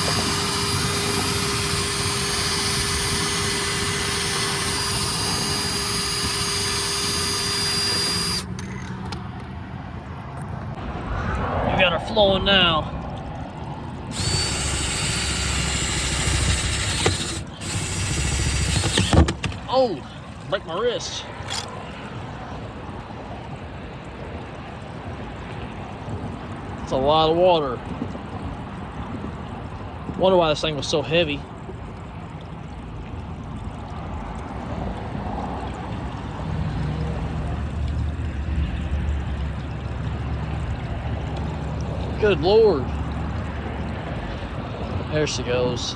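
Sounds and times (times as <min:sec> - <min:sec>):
power drill boring into plastic: 0:00.0 - 0:08.5, 0:14.1 - 0:19.7
water gushing and splashing on ground: 0:00.0 - 0:08.5, 0:10.8 - 0:45.8.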